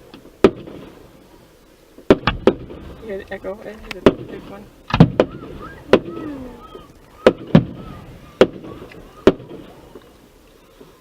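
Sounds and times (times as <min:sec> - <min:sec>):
fireworks bangs with echo: 0:00.3 - 0:01.1, 0:02.0 - 0:03.2, 0:04.0 - 0:10.0.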